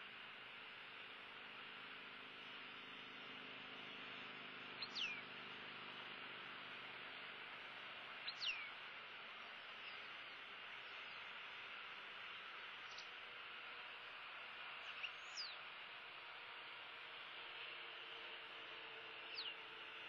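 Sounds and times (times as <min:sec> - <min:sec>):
whistled bird calls: 0:04.7 - 0:05.3, 0:08.2 - 0:08.8, 0:12.8 - 0:13.1, 0:14.8 - 0:15.6, 0:19.2 - 0:19.6.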